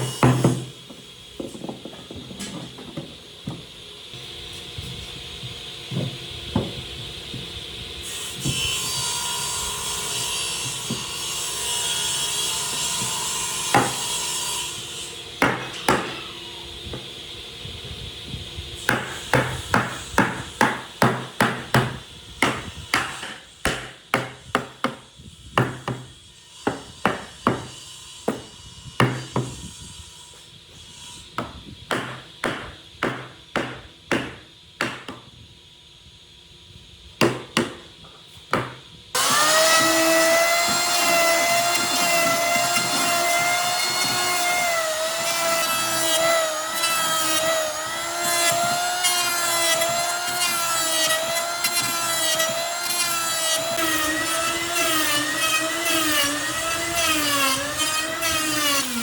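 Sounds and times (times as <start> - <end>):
hammer striking wood: 0.0 - 3.7, 10.6 - 11.2, 12.7 - 14.1, 15.4 - 16.2, 18.9 - 29.6, 31.4 - 35.3, 37.2 - 50.6
power tool whining: 39.1 - 59.0.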